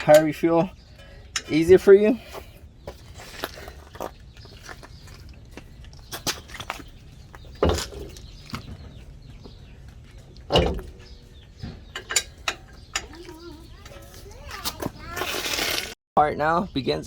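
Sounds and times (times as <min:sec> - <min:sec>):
knocks and clicks of metal parts: 0:10.3 - 0:14.1.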